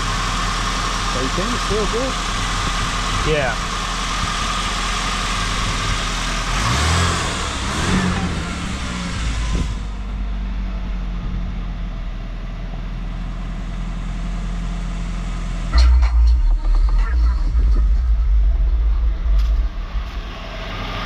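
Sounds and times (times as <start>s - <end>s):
car engine running: 0.0s - 21.0s
higher-pitched noise: 15.7s - 21.0s.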